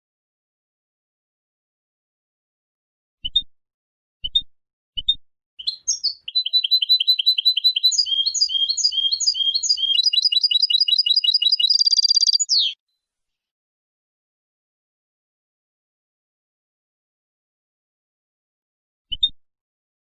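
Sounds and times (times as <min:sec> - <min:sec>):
finch twittering song: 0:05.6 - 0:12.8.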